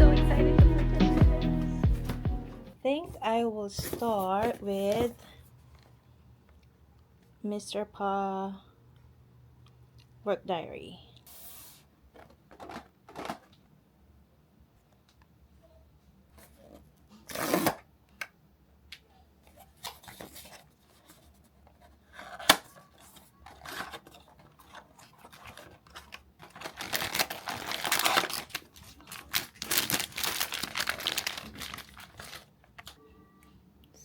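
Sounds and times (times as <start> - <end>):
packaging tearing and rustling: 17.2 - 17.8, 19.6 - 33.0.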